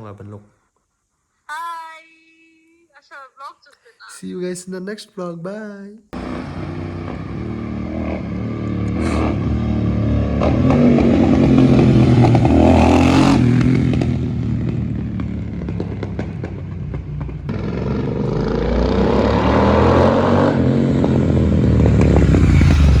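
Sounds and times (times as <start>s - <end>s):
motorcycle engine revving: 6.2s - 23.0s.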